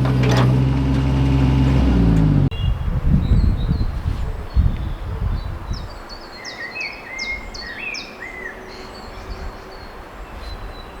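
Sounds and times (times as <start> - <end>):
outdoor background noise: 0.0 - 11.0
small songbird chirping: 2.5 - 11.0.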